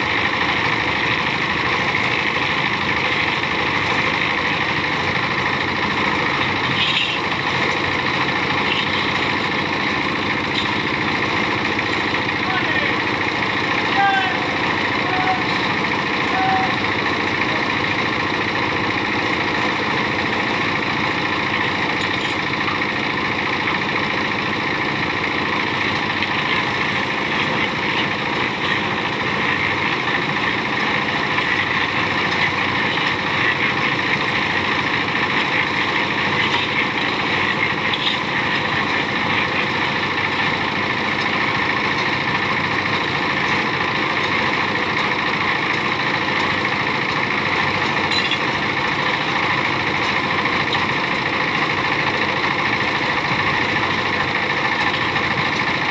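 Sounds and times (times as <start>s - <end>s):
engine running with whine: 0.0s - 55.9s.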